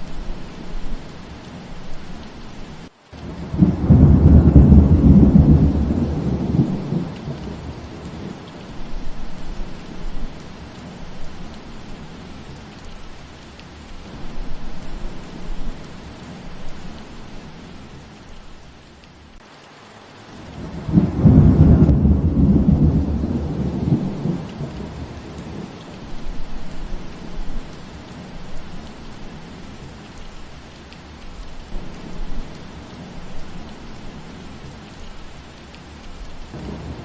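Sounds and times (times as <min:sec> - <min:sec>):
steady rain falling: 0:00.0 - 0:37.0
thunder rumbling: 0:03.2 - 0:12.6, 0:20.5 - 0:29.9, 0:36.5 - 0:37.0.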